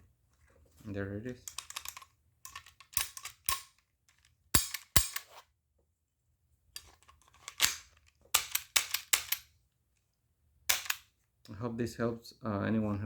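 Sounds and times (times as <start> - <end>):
pistol mechanical clicks and snaps: 1.5 - 3.8, 4.6 - 5.3, 7.5 - 9.4, 10.7 - 11.0.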